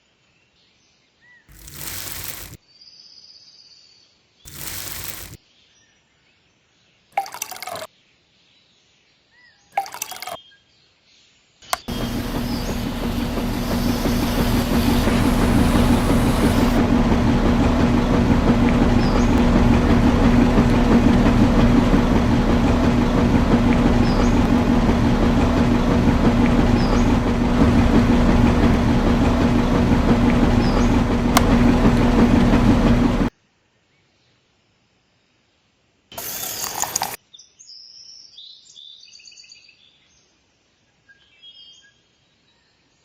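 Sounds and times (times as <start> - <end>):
small machine humming: 1.5 - 2.6, 4.5 - 5.4, 11.8 - 33.3, 36.2 - 37.2.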